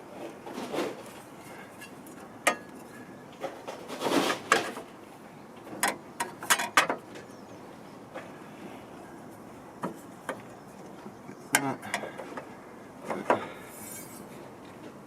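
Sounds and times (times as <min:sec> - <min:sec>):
scraping rustle: 0:00.1 - 0:02.2, 0:02.8 - 0:04.9, 0:13.6 - 0:14.5.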